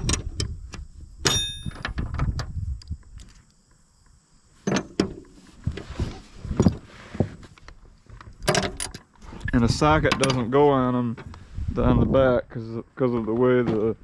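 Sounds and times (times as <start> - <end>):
bolts clicking and knocking: 0.0 - 2.5, 4.6 - 5.3, 8.1 - 9.1, 9.9 - 11.4
metal clink on steel deck: 1.2 - 2.0.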